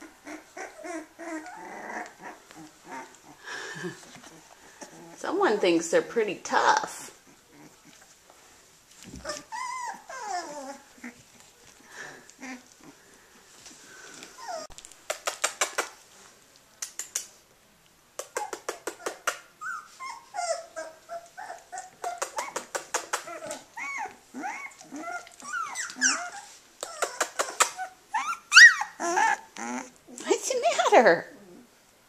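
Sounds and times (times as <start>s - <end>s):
puppies whimpering and yelping: 0.0s - 5.2s, 6.9s - 8.2s, 8.9s - 13.0s, 14.1s - 14.7s, 18.4s - 30.2s.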